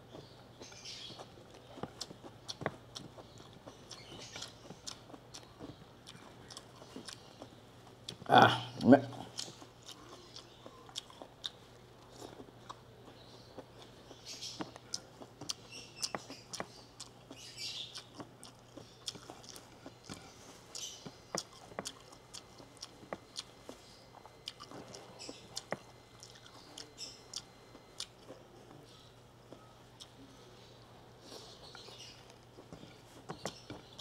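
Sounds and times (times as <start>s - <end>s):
faint low hum: 0.0s - 34.0s
man chewing food: 0.0s - 34.0s.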